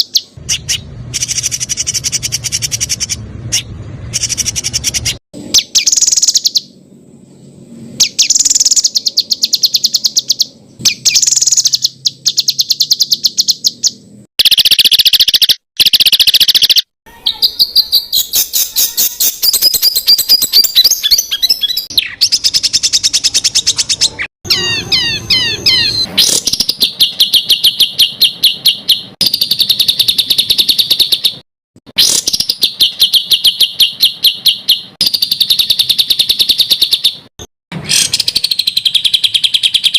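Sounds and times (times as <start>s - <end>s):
songbird fast sharp notes: 0.0s - 31.4s.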